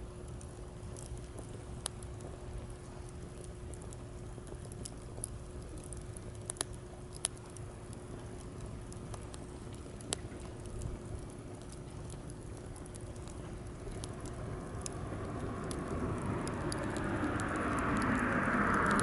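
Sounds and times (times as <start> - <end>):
campfire crackling and popping: 0.0 - 19.0
low rumble of waves: 8.2 - 19.0.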